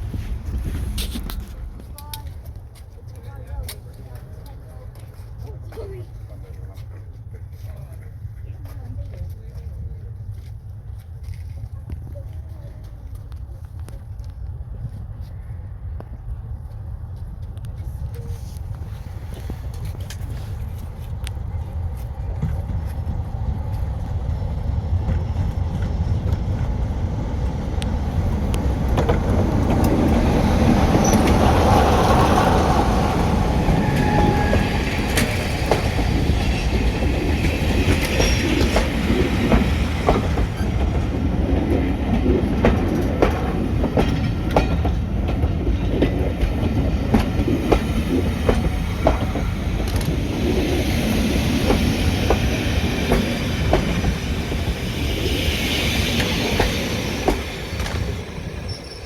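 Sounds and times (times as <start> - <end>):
diesel train engine rumble: 0.0 - 59.0
train wheels clattering over rail joints: 27.8 - 59.0.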